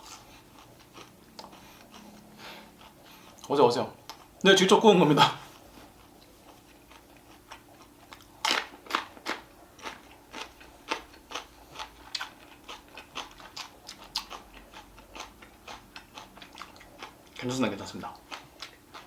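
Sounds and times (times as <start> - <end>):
crunchy chewing: 0.0 - 4.4, 5.4 - 19.0.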